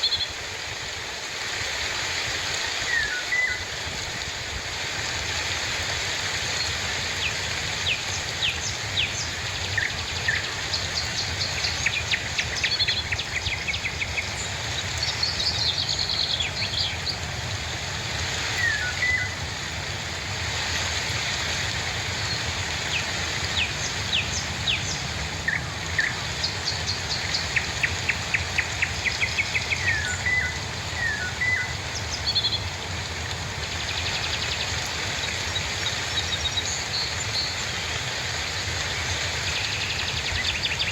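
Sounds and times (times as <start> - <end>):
rain hiss: 0.0 - 40.9
birds chirping and calling: 22.9 - 32.6.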